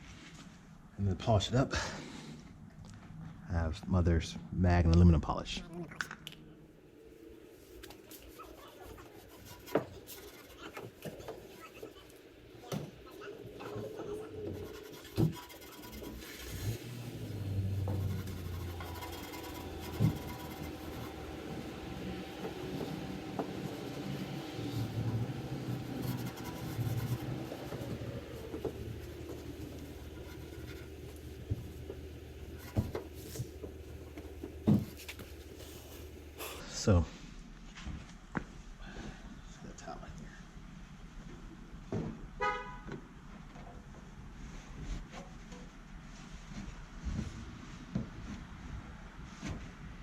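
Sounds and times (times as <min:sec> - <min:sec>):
steady low hum: 0:00.0 - 0:42.2
small ticks and scrapes: 0:07.8 - 0:12.2, 0:13.6 - 0:16.9, 0:17.8 - 0:21.4, 0:24.6 - 0:36.2
rubbing chrome by hand: 0:08.0 - 0:12.0, 0:13.1 - 0:36.4.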